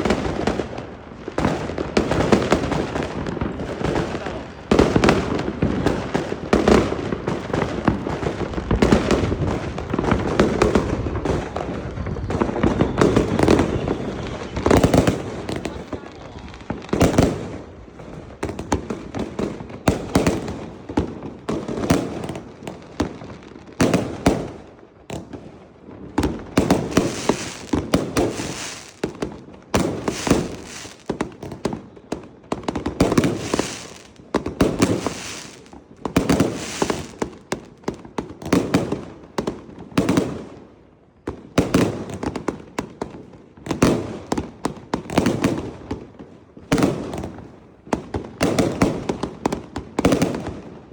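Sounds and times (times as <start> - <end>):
fireworks bangs and crackling: 0.0 - 50.9.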